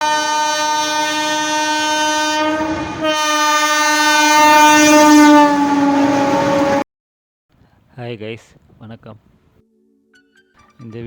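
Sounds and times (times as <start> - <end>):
horn sounding long note: 0.0 - 6.8.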